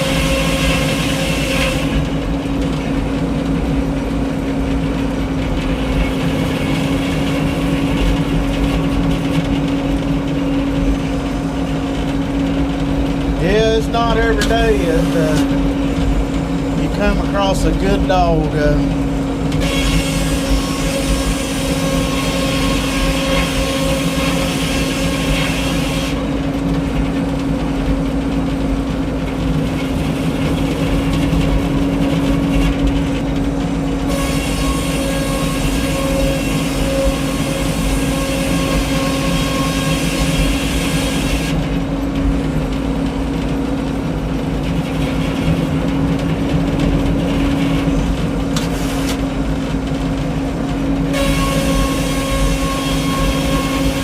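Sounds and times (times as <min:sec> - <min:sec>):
saw blade cutting log: 0:00.0 - 0:02.0, 0:13.4 - 0:15.6, 0:19.6 - 0:26.2, 0:34.1 - 0:41.6, 0:51.1 - 0:54.0
sawmill engine drone: 0:00.0 - 0:54.0.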